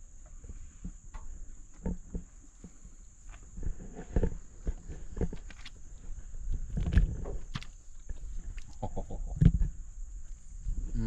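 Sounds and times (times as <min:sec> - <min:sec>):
crickets trilling: 0:00.0 - 0:11.0
close knocks and crackles: 0:00.2 - 0:09.8.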